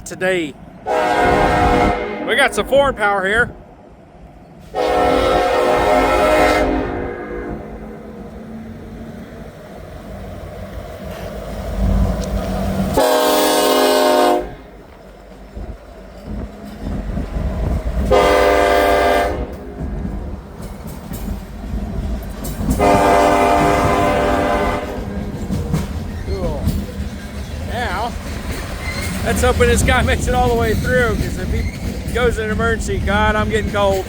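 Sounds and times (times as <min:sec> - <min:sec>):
diesel locomotive rumble: 0:00.0 - 0:34.0
locomotive air horn blasts: 0:00.8 - 0:02.6, 0:04.7 - 0:07.9, 0:13.0 - 0:14.7, 0:18.1 - 0:19.6, 0:22.8 - 0:25.1.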